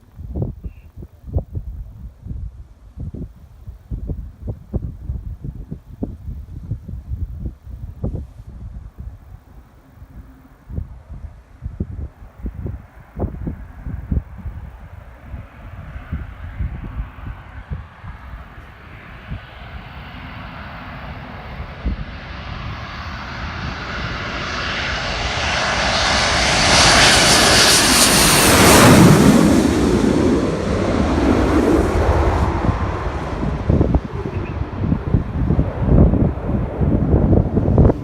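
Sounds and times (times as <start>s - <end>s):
jet flying past: 12.4s - 38.0s.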